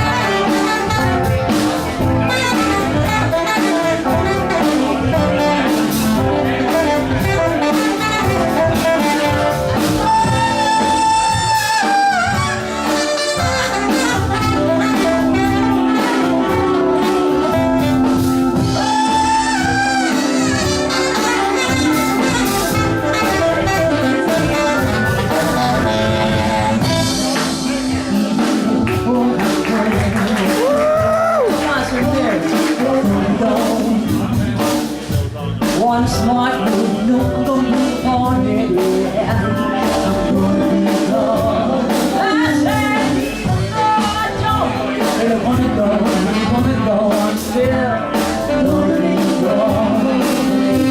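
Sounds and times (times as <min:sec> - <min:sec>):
saxophone long held notes: 0:00.0 - 0:29.2
bass: 0:00.0 - 0:50.9
drums: 0:00.0 - 0:50.9.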